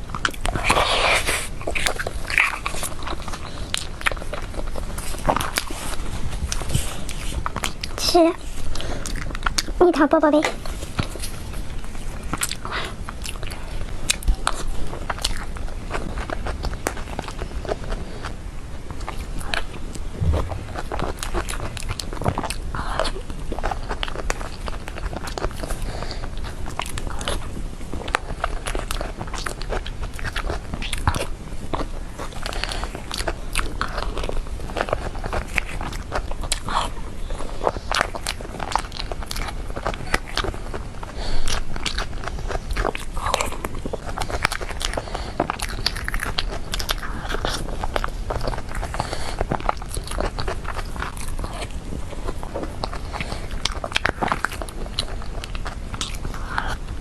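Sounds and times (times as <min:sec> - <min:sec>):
biting and chewing: 0:00.0 - 0:57.0
low thump: 0:20.2 - 0:20.9.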